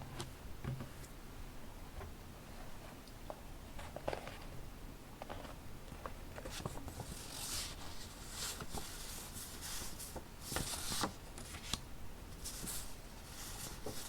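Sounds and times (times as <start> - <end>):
paper rustling: 5.2 - 11.8, 12.4 - 14.0.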